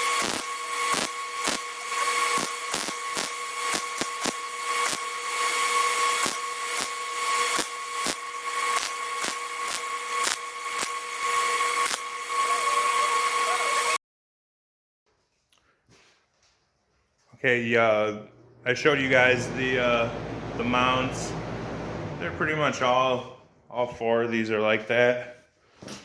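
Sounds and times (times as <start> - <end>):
power tool whining on metal: 0.0 - 14.0, 18.2 - 23.5.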